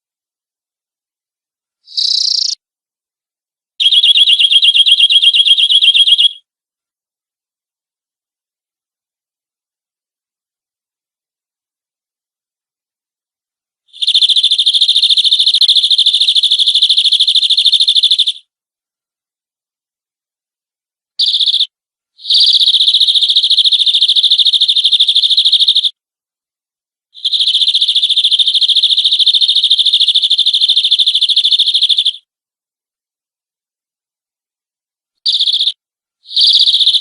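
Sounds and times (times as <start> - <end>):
canary singing trills: 1.9 - 2.6, 3.8 - 6.4, 14.0 - 18.4, 21.2 - 25.9, 35.3 - 37.0.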